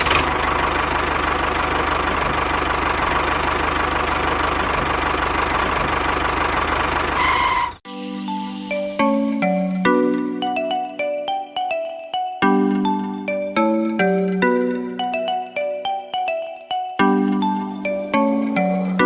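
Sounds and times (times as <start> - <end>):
tractor engine idling with knocking: 0.0 - 7.7
mallet percussion tune: 7.9 - 19.0.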